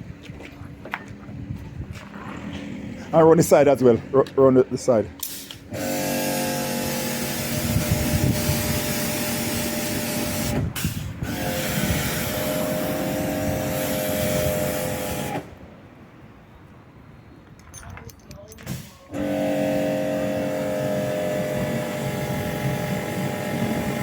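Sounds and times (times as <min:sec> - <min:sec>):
pressure washer motor hum: 0:05.2 - 0:15.6, 0:19.1 - 0:24.0.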